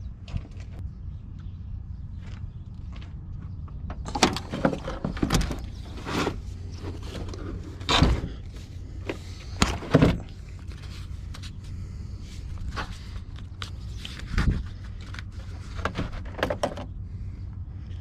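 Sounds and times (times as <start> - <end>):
steady low rumble: 0.0 - 18.0
battery knocking and scraping: 3.9 - 17.0.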